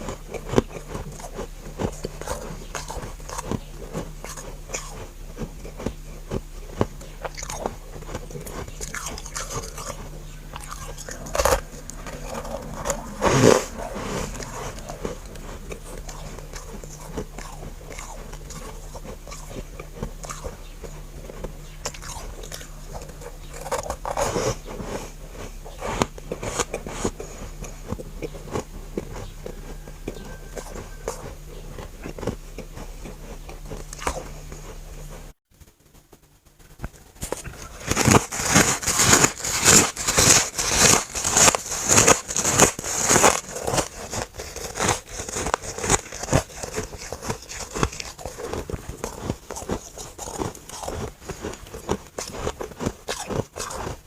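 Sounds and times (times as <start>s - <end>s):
ice being crunched by teeth: 0.0s - 34.4s, 37.2s - 54.0s
low electrical hum: 0.0s - 54.0s.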